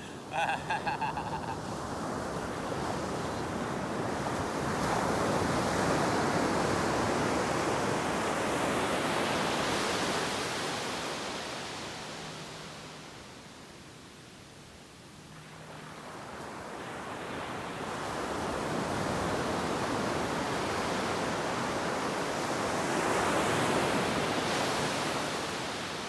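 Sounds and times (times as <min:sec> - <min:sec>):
ocean wave breaking on beach: 0:00.0 - 0:11.9.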